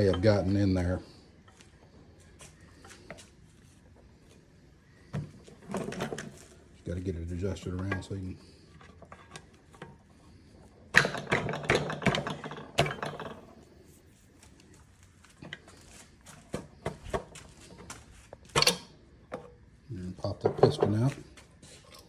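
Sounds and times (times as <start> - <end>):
metal clinks and knocks: 10.9 - 13.8.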